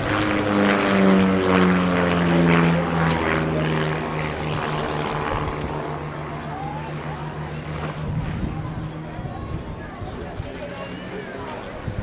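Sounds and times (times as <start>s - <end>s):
propeller aeroplane engine passing: 0.0s - 12.0s.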